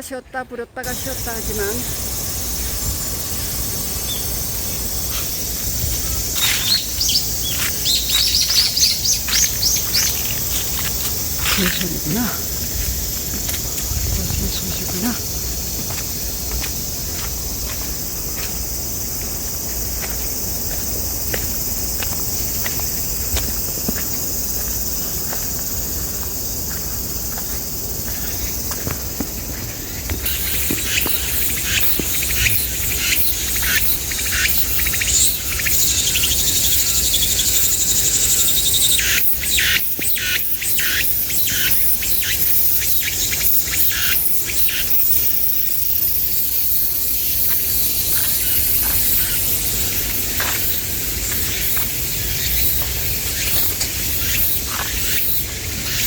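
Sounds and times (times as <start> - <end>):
insect chorus shrilling: 0.8 - 56.0
rasping insect buzz with pulses: 0.9 - 17.3, 30.2 - 56.0.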